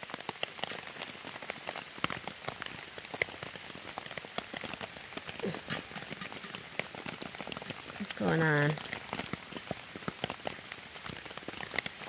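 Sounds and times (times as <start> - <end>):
raindrops pattering close by: 0.0 - 12.0
steady rain falling: 0.0 - 12.0.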